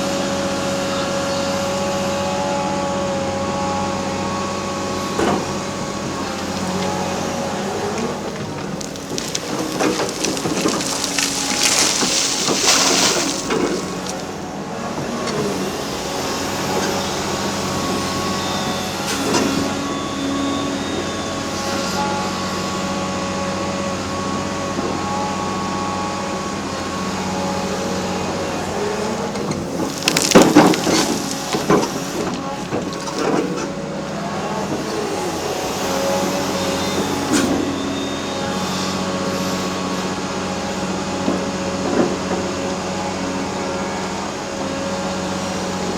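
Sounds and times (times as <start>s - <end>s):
excavator diesel engine: 0.0s - 45.9s
hydraulic whine: 0.0s - 45.9s
concrete crunching and cracking: 5.4s - 14.6s, 28.3s - 33.8s
concrete breaking crash: 8.0s - 14.4s, 29.4s - 33.2s.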